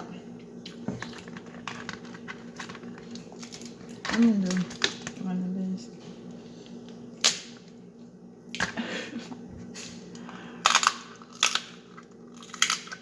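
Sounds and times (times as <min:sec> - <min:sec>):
crab shells cracking: 0:10.6 - 0:13.0.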